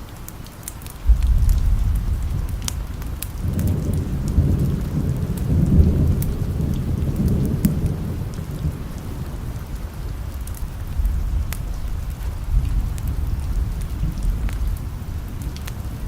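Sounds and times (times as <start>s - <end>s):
steady rain: 0.0s - 16.0s
rolling thunder rumble: 1.0s - 16.0s.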